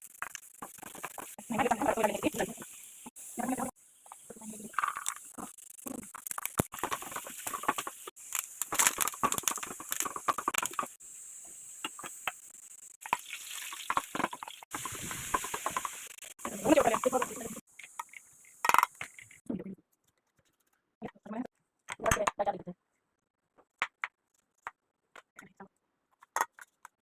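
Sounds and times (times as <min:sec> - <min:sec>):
food sizzling: 0:00.0 - 0:19.5.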